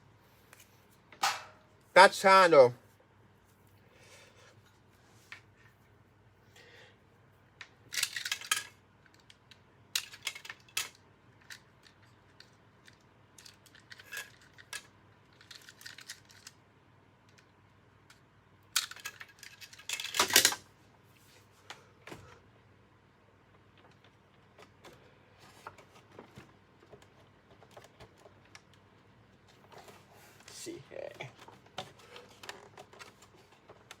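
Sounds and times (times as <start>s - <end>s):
plastic parts clicking and rattling: 7.6s - 16.6s, 17.2s - 20.7s, 23.5s - 34.0s.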